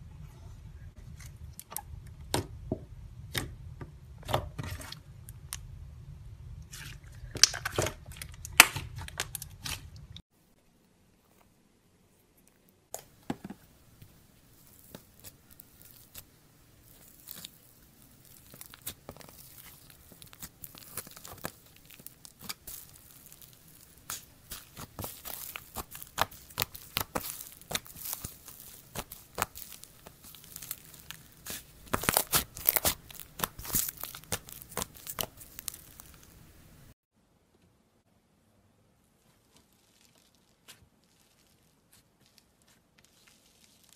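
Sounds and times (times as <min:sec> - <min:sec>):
slime crackling and popping: 0:14.1 - 0:36.4, 0:39.6 - 0:43.9.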